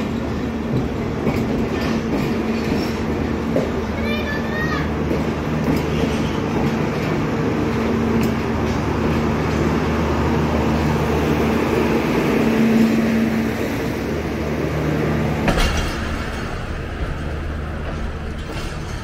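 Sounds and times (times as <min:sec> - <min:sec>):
train wheels running on rails: 0:00.0 - 0:19.0.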